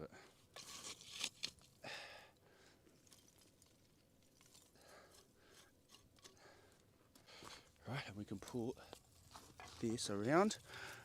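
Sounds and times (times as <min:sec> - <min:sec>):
crunching and scraping handling: 0:00.5 - 0:01.8, 0:03.0 - 0:06.4.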